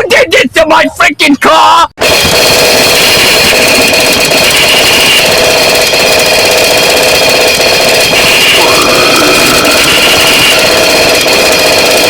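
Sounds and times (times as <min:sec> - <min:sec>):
distorted noise music: 0:08.2 - 0:10.8.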